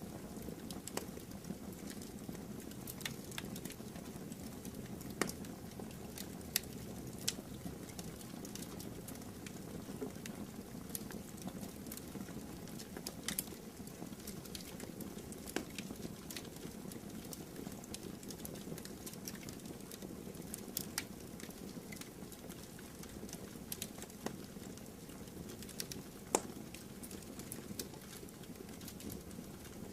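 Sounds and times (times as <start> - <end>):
wood crackling and popping: 0.0 - 29.9.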